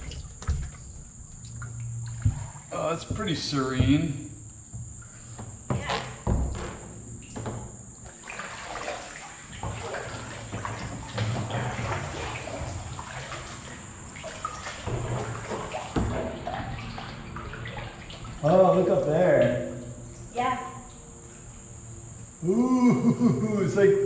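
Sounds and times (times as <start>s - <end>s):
paddle splashing water: 0.0s - 3.5s, 8.0s - 18.6s
high insect trill: 0.0s - 24.0s.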